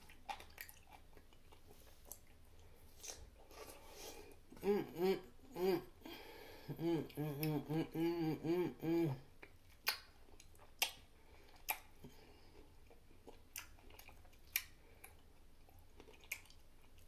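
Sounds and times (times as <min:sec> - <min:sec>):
wet crunching while chewing: 0:00.0 - 0:04.0, 0:09.4 - 0:17.0.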